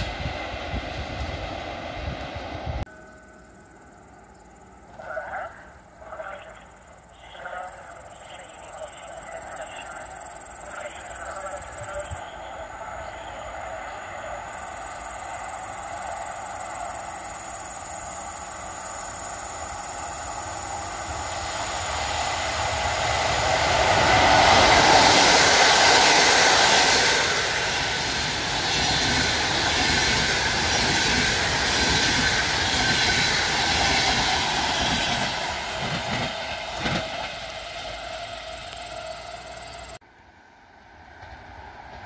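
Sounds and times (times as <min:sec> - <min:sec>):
passenger train passing: 0:00.0 - 0:42.0
wheels running on rails: 0:14.6 - 0:40.0.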